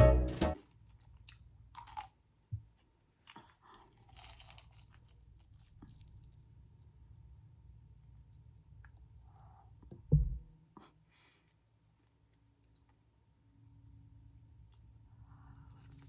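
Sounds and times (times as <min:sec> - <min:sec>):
piano intro music: 0:00.0 - 0:00.6
crunchy food bites: 0:01.1 - 0:02.2, 0:03.2 - 0:06.9.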